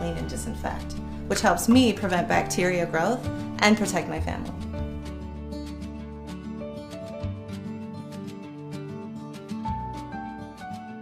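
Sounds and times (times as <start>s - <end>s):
soft plucked guitar music: 0.0s - 11.0s.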